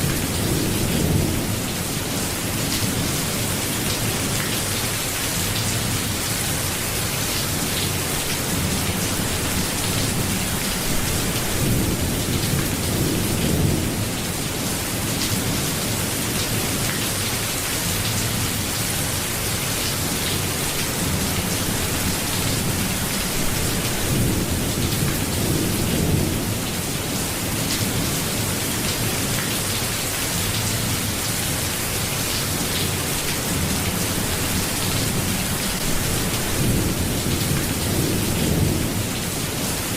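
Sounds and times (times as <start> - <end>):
steady rain falling: 0.0 - 39.9
low rumbles of thunder: 20.5 - 26.8.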